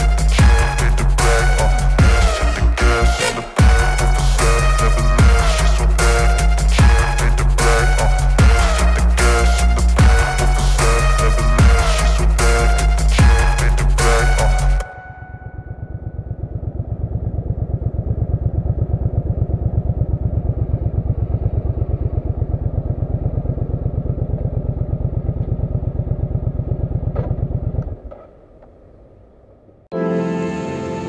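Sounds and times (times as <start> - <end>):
motorcycle engine idling: 15.2 - 29.2.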